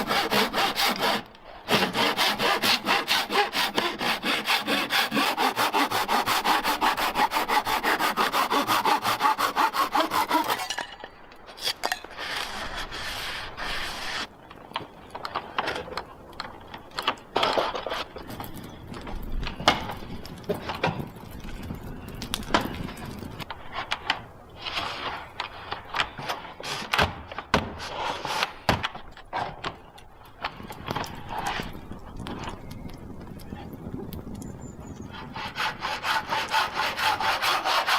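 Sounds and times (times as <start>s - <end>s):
objects knocking and clattering: 10.6s - 12.1s.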